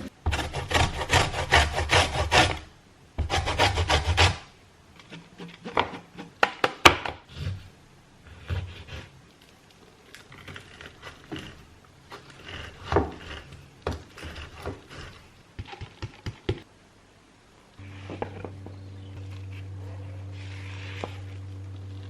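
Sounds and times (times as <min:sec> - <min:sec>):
electric appliance humming: 0:17.8 - 0:22.0.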